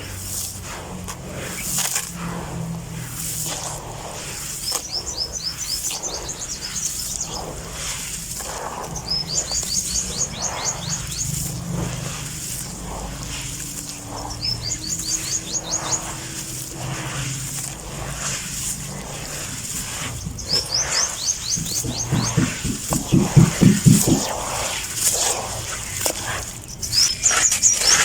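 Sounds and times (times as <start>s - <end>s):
songbird singing: 14.2s - 16.2s, 19.0s - 24.4s
steady low hum: 18.0s - 24.7s.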